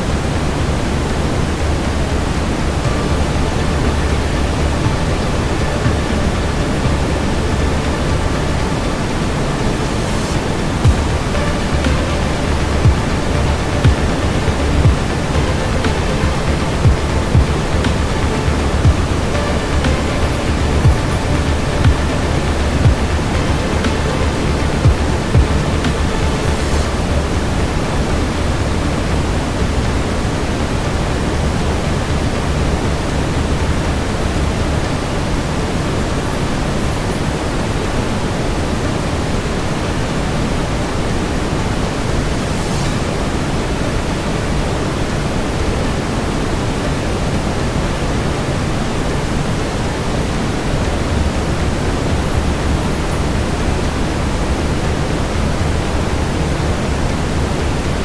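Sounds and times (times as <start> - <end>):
brown noise hiss: 0.0 - 58.0.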